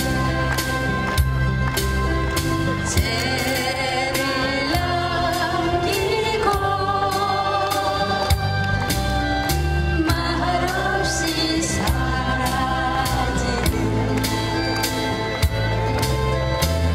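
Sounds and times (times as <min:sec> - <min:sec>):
band backing track with beat: 0:00.0 - 0:16.9
person singing with vibrato: 0:02.9 - 0:08.5, 0:09.8 - 0:14.6.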